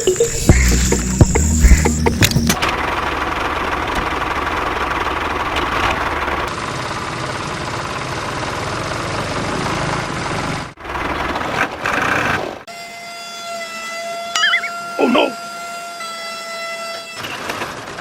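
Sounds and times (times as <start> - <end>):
tractor engine knocking and rattling: 2.2 - 12.0.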